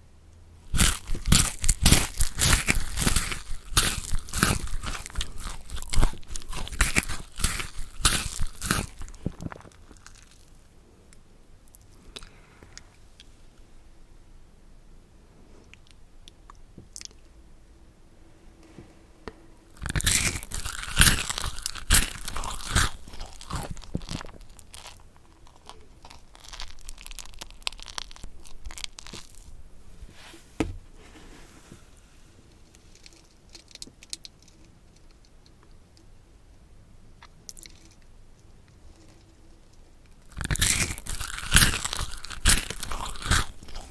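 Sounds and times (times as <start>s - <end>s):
crunchy food being chewed: 0.7s - 10.7s, 15.7s - 17.3s, 19.7s - 29.6s, 37.2s - 38.1s, 38.7s - 43.9s.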